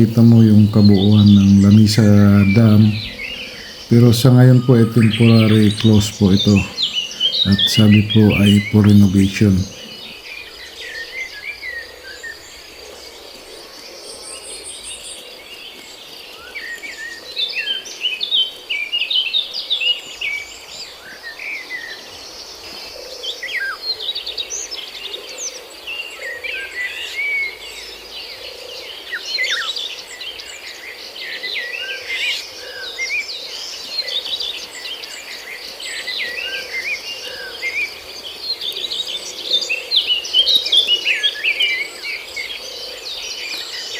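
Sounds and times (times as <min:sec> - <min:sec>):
birds chirping: 0:00.0 - 0:10.2.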